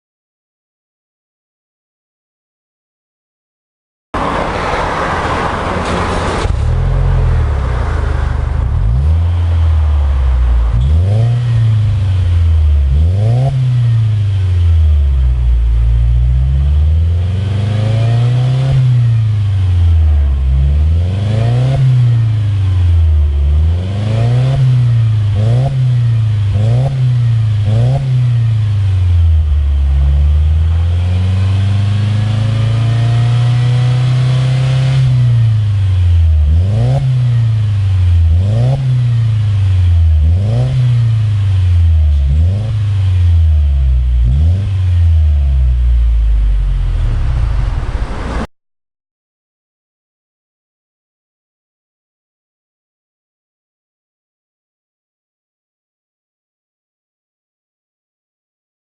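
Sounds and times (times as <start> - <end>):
car engine idling and revving: 4.2 - 48.5.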